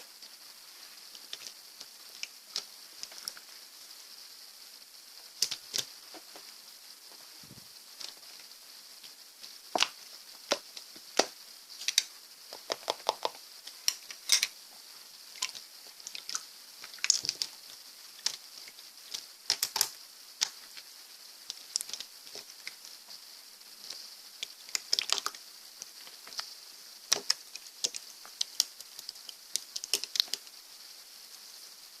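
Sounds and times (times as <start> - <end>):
steady background hiss: 0.0 - 32.0
slime clicking and popping: 9.7 - 14.1, 19.1 - 20.6, 24.4 - 25.4, 27.1 - 30.5.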